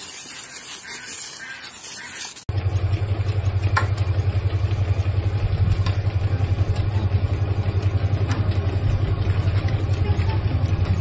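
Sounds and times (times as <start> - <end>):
dog treadmill rumbling: 2.5 - 11.0.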